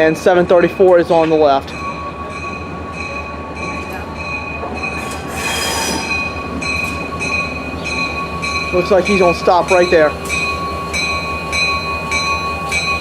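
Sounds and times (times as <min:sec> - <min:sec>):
diesel locomotive engine rumble: 0:00.0 - 0:13.0
high-pitched squeal of running gear: 0:05.0 - 0:06.3.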